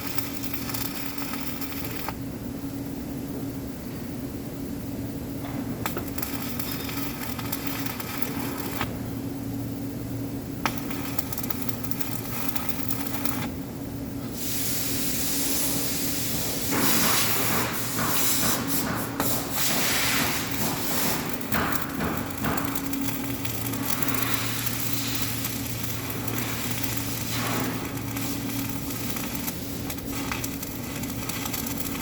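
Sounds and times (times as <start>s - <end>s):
welding arc hissing and crackling: 0.0s - 2.2s, 5.4s - 9.2s, 10.4s - 13.6s, 14.2s - 32.0s
steady hum: 0.0s - 32.0s.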